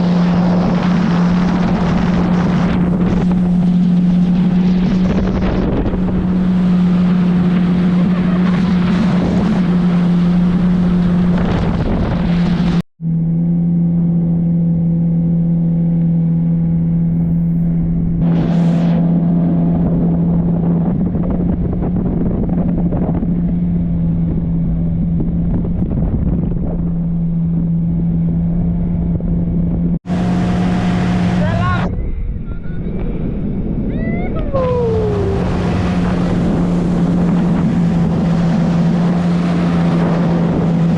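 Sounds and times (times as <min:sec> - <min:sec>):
water rushing: 0:00.0 - 0:12.8, 0:30.0 - 0:32.0, 0:33.9 - 0:40.9
wind rushing: 0:00.0 - 0:12.8, 0:16.7 - 0:40.9
jet ski engine running: 0:00.0 - 0:40.9.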